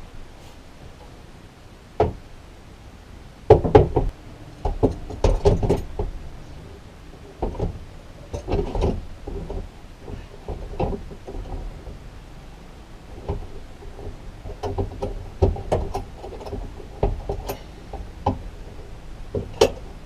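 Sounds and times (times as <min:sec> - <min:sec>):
knocks and thumps of building work: 0:02.0 - 0:02.2, 0:03.5 - 0:06.2, 0:07.3 - 0:12.0, 0:13.1 - 0:18.7, 0:19.3 - 0:20.0.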